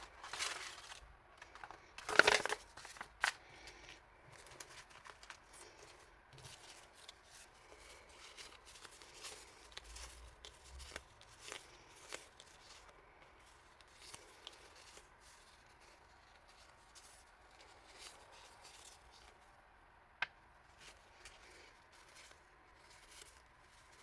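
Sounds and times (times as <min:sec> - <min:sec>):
packaging rustling and tapping: 0:00.0 - 0:03.4.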